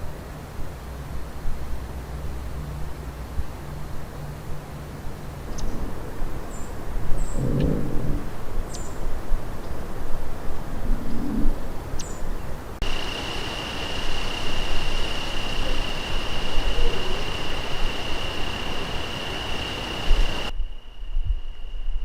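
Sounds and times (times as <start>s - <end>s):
low rumble and hiss: 0.0s - 22.0s
steady high-pitched tone: 12.8s - 22.0s.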